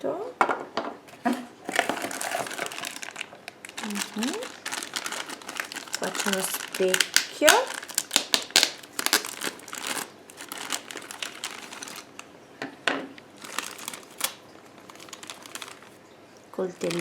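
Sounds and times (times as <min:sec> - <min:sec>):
plastic packaging crinkling: 0:01.1 - 0:12.3, 0:13.3 - 0:16.1, 0:16.7 - 0:17.0
plastic toy pieces clicking: 0:13.4 - 0:16.0.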